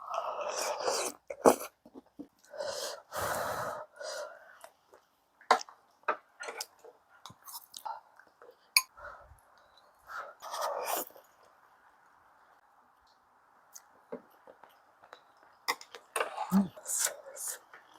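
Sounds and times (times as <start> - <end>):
person slurping: 0.1 - 1.8.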